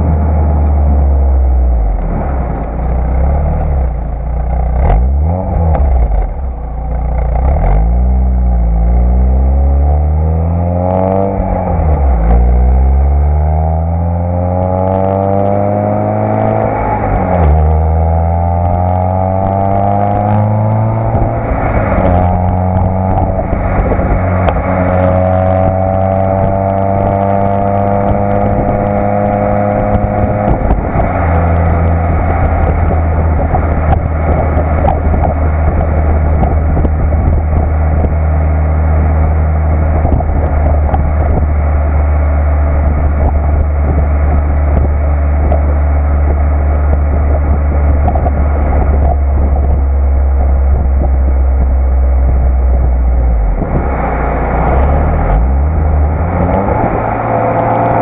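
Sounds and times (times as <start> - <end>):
car engine accelerating: 0.0 - 58.0
road and wind noise: 0.0 - 58.0.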